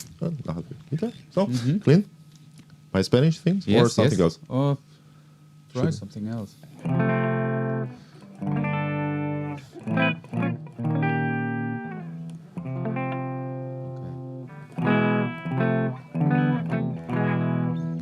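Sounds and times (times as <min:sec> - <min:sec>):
clean electric guitar chords: 0:06.7 - 0:18.0.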